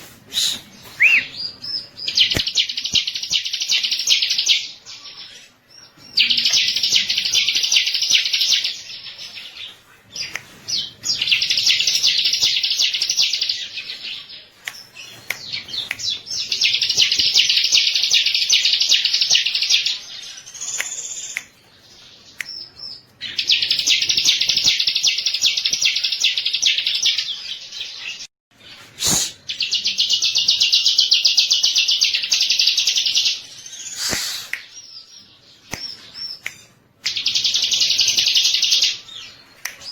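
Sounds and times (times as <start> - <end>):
bird fast trilling song: 0.3 - 4.3
sharp click: 2.3 - 3.1, 34.0 - 34.7.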